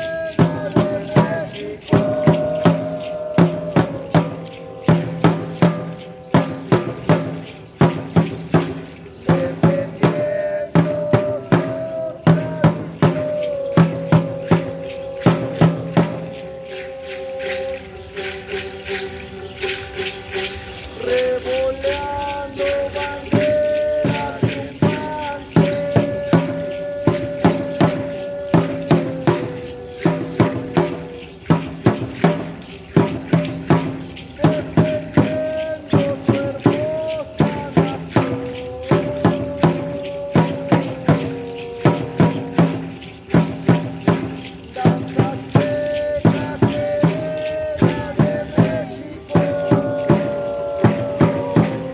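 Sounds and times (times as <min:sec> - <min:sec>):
drum beating steady rhythm: 0:00.0 - 0:51.9
held wavering high tone: 0:00.0 - 0:51.9.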